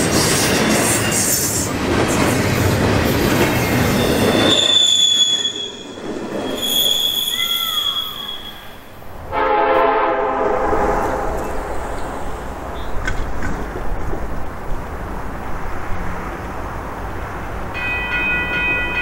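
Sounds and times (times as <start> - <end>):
train wheels squealing: 0.0 - 2.5, 3.3 - 8.9
freight train rumble: 0.0 - 19.0
locomotive horn: 9.3 - 11.5.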